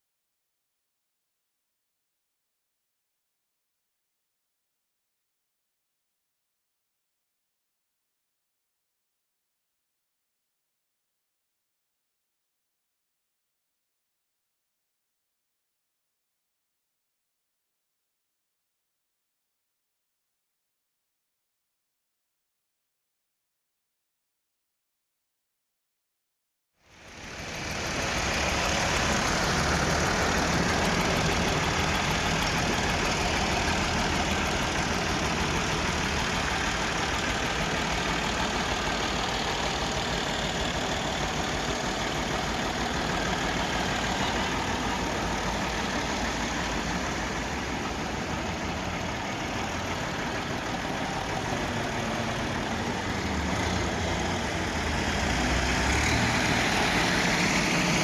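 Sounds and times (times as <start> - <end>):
diesel tractor engine running: 26.9 - 58.0.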